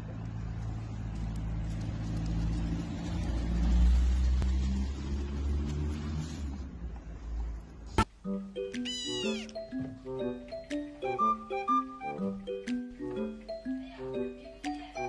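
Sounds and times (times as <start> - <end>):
vehicle engine rumbling: 0.0 - 8.1.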